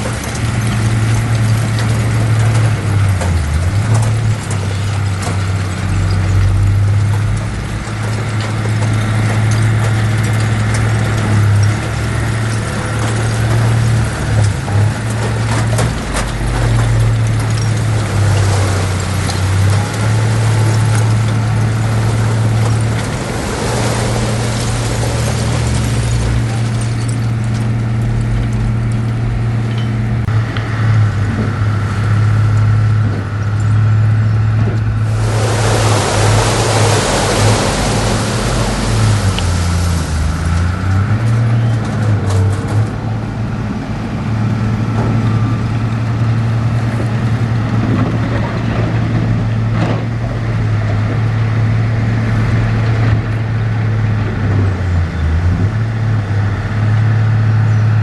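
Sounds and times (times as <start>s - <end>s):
heavy diesel engine droning: 0.0s - 58.0s
loud rushing noise: 18.1s - 26.8s, 34.9s - 41.3s.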